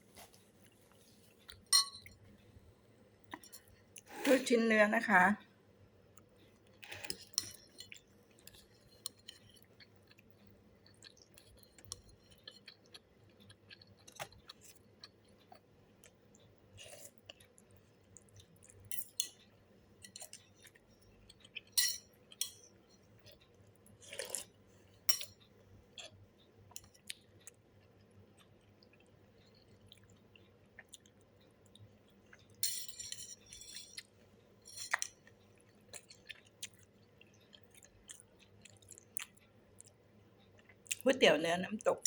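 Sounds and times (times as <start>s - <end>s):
utensils clinking against bowl: 1.7s - 2.1s, 21.8s - 22.6s, 32.6s - 34.0s
person chewing: 6.2s - 19.2s, 20.0s - 22.4s, 23.1s - 32.6s, 33.4s - 41.0s.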